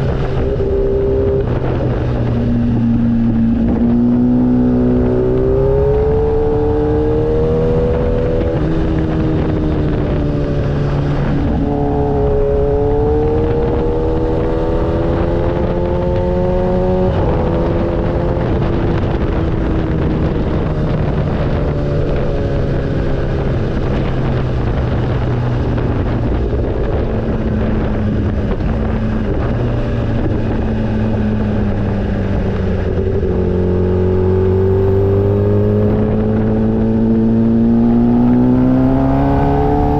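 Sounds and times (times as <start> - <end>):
motorcycle engine revving: 0.0 - 39.9
wind rushing: 0.0 - 39.9.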